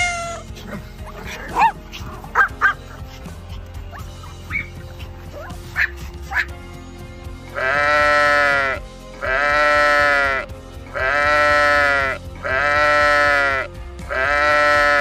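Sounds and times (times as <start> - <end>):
sheep bleating: 7.5 - 15.0.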